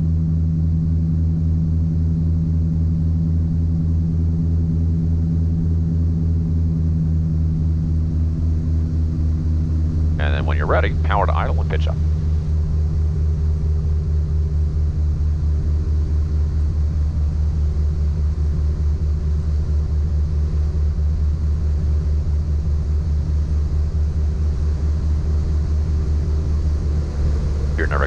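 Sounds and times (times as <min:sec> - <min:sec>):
aircraft engines droning: 0:07.4 - 0:17.4, 0:24.7 - 0:28.0.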